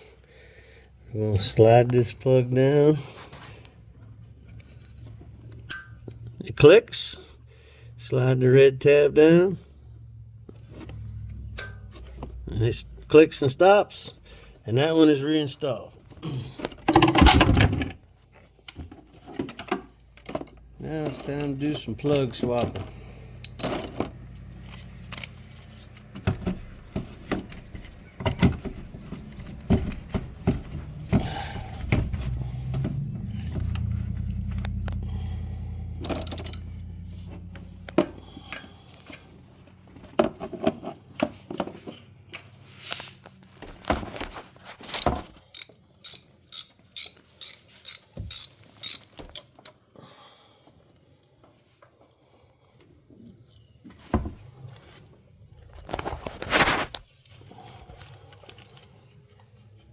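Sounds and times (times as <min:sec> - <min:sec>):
low hum: 0:31.6 - 0:38.0
hand ratchet clicking: 0:36.0 - 0:36.8, 0:44.9 - 0:49.5.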